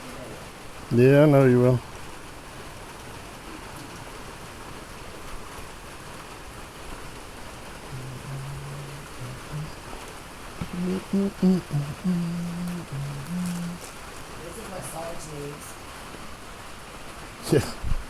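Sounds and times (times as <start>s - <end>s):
steady rain falling: 0.0s - 18.0s
faint low voice murmuring: 7.9s - 10.0s, 10.6s - 14.0s, 17.4s - 17.8s.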